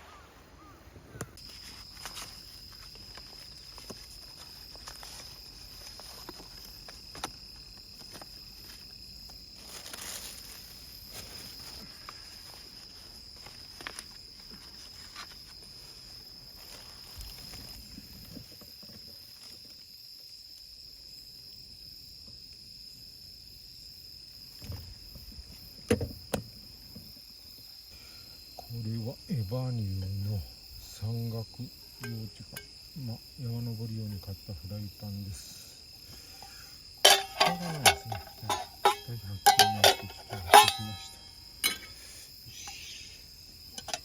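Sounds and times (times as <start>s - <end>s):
cricket trilling: 0.0s - 44.0s
handling clicks and rustles: 1.4s - 8.9s, 37.0s - 42.0s.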